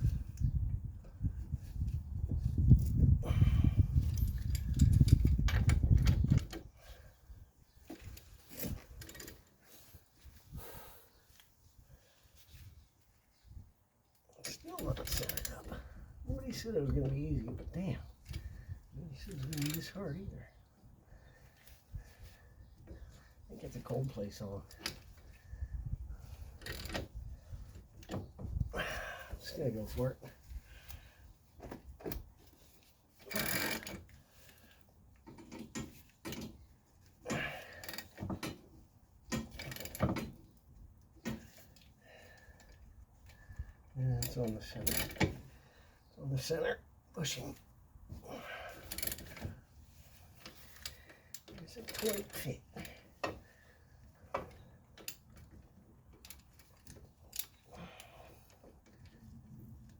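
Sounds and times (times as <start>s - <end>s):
tool scraping and ratcheting: 4.0s - 6.6s, 14.8s - 15.8s, 31.7s - 34.4s, 37.3s - 40.4s, 48.8s - 53.5s.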